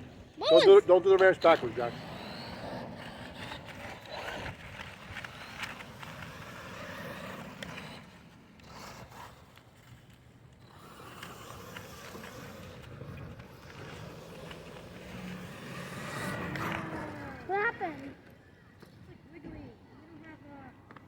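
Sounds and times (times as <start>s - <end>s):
toy trucks running on pavement: 0.0s - 21.0s
tyre and chassis scraping: 1.1s - 17.9s.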